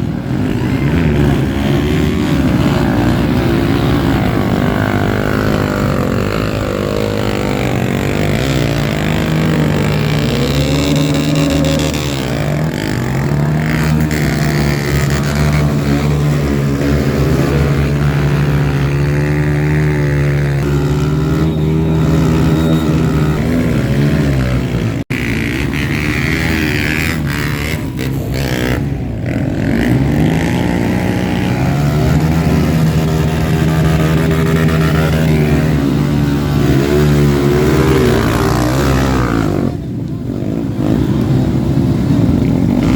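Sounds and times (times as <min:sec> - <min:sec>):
motorcycle engines revving: 0:00.0 - 0:42.9.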